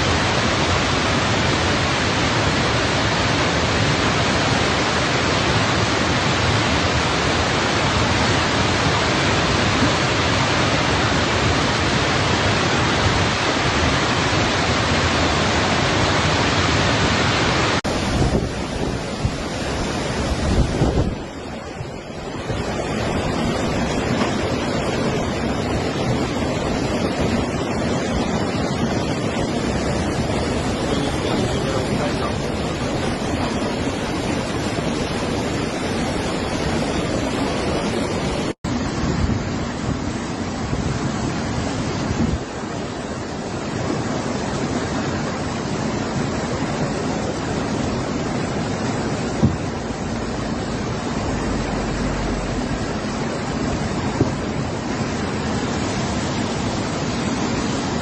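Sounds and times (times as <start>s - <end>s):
rushing floodwater roar: 0.0s - 58.0s
wind buffeting microphone: 17.8s - 58.0s.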